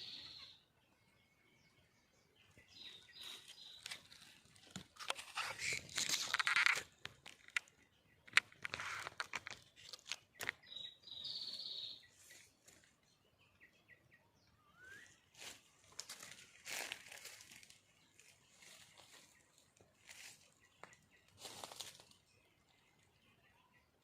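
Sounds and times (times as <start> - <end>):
high chirping bird call: 0.0 - 1.8, 10.2 - 12.5
rustling and crackling: 3.4 - 10.6.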